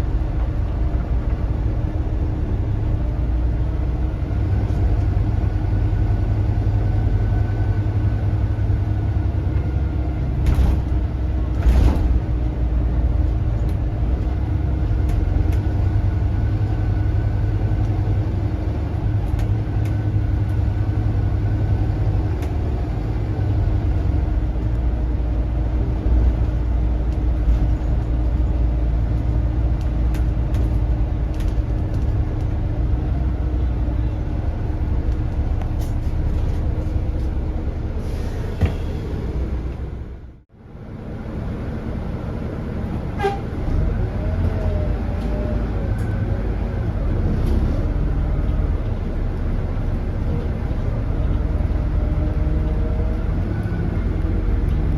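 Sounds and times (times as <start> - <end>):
diesel bus engine rumble: 0.0 - 54.9
faint turbo whistle: 43.2 - 43.5.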